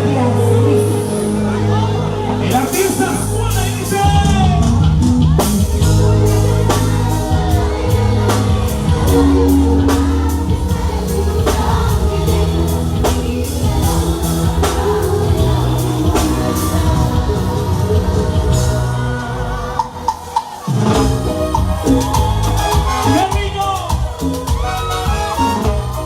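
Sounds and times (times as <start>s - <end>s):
bass line: 0.0s - 26.0s
drum beat: 4.0s - 26.0s
person singing: 4.1s - 23.2s.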